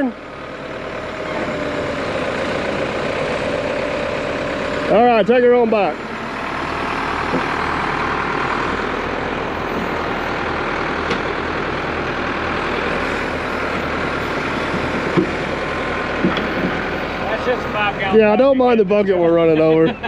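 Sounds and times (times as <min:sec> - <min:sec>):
heavy equipment engine under load: 0:00.0 - 0:20.0.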